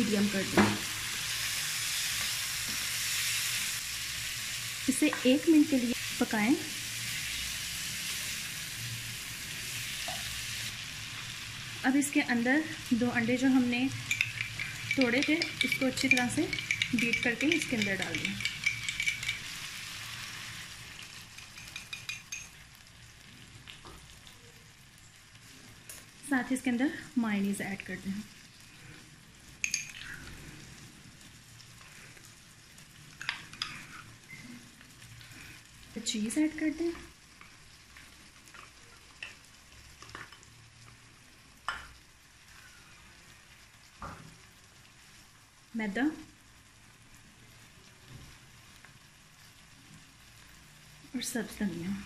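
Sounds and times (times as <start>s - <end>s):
chicken sizzling in a pan: 0.0s - 52.0s.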